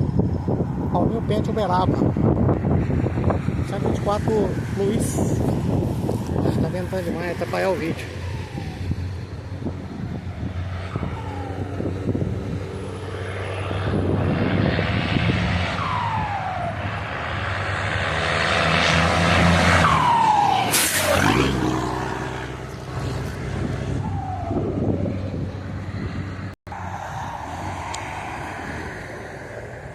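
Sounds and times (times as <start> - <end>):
diesel truck engine revving: 2.7 - 26.6
falling turbo whistles: 19.6 - 21.9.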